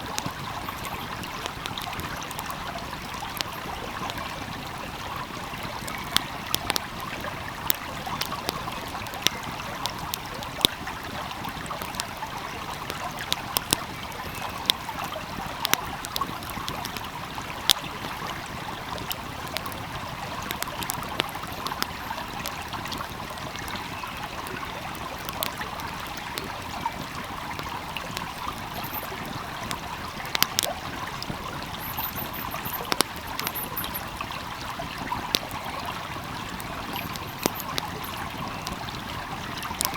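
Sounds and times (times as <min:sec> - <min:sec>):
wood fire crackling: 0:00.0 - 0:39.9
stream rushing: 0:27.4 - 0:39.9.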